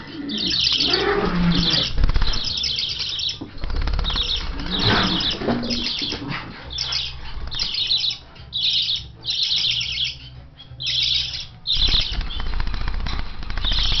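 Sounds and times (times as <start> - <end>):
budgerigars chirping: 0.0 - 12.9, 13.5 - 14.0
wings flapping: 0.8 - 7.9, 11.7 - 14.0.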